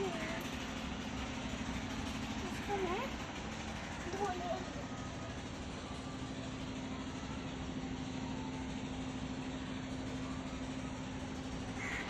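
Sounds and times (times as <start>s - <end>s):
constant even noise: 0.0s - 12.0s
steady low hum: 0.0s - 12.0s.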